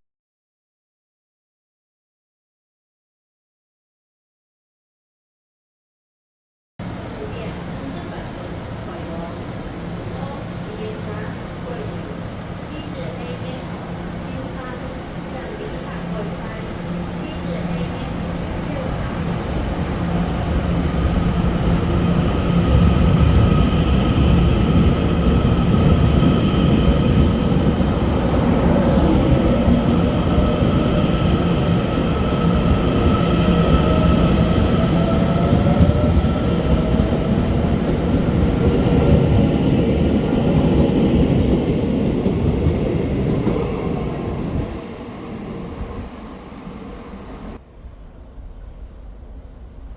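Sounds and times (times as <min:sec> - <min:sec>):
train wheels rumbling on track: 0:06.8 - 0:49.9
high whining traction tones: 0:19.1 - 0:49.6.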